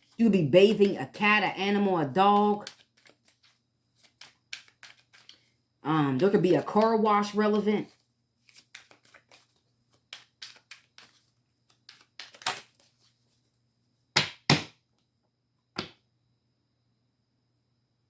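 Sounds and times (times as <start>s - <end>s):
cards slapping: 2.6s - 5.4s, 8.4s - 13.0s, 14.2s - 14.8s
card flicks and taps: 14.2s - 14.7s, 15.8s - 16.0s.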